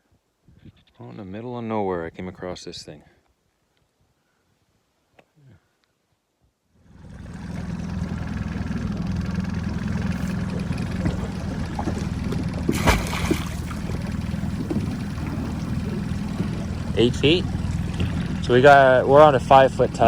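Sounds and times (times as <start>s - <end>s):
boat motor running: 6.8s - 20.0s
water noise: 6.9s - 20.0s.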